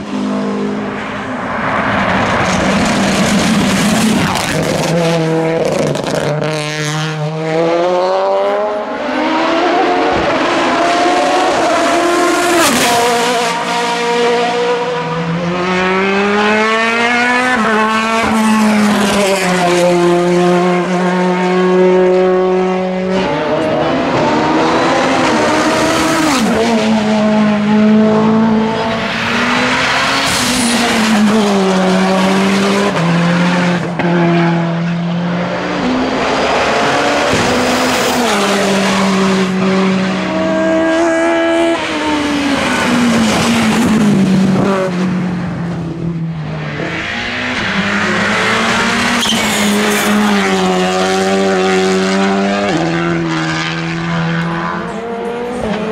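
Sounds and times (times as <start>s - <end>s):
race car engine accelerating: 0.0s - 55.9s.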